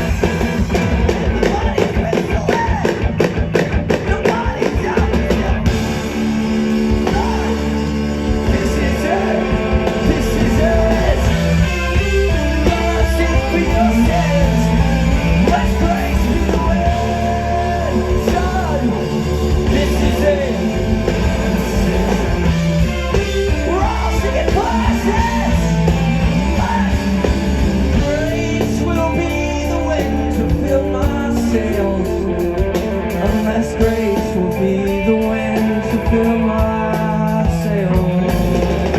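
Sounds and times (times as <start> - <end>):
live rock band playing: 0.0 - 38.9
person singing or shouting: 1.3 - 3.1, 4.0 - 32.4.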